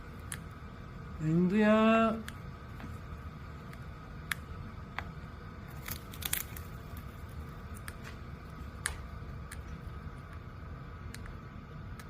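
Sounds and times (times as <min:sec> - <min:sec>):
parrot crunching a snack: 0:05.6 - 0:09.8.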